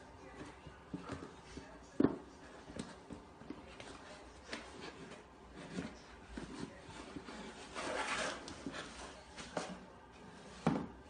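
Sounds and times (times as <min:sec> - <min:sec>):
cardboard box scraping on wooden floor: 0:04.7 - 0:09.7.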